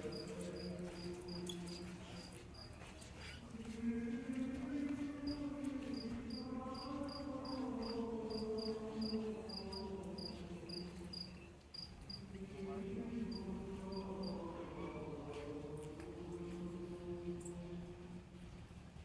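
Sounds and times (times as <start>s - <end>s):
voices singing long held notes: 0.0s - 2.4s, 3.4s - 18.5s
crickets chirping: 0.0s - 2.8s, 5.2s - 12.4s, 13.3s - 14.4s.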